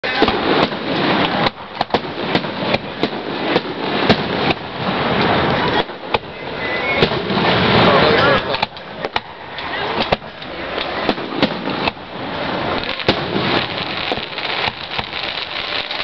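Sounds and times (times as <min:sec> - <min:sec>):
continuous noisy background: 0:00.0 - 0:16.0
firework shells bursting: 0:00.0 - 0:16.0.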